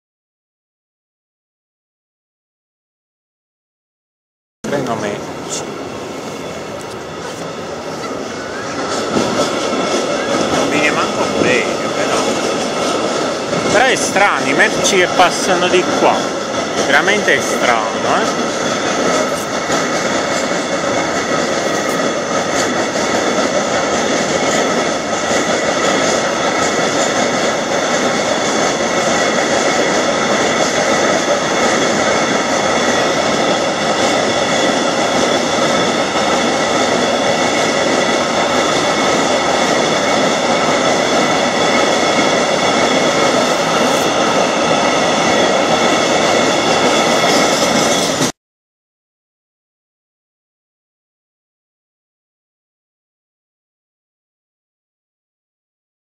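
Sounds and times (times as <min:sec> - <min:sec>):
freight train rumbling on rails: 0:04.6 - 0:48.4.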